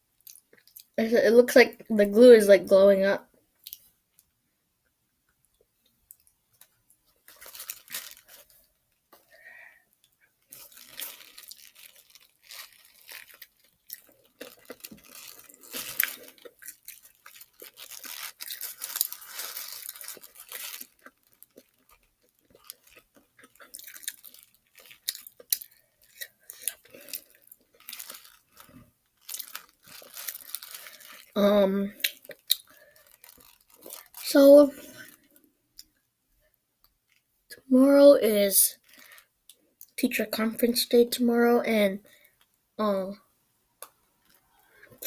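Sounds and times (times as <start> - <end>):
chewing crispy fried food: 0.1 - 1.0, 5.3 - 34.3.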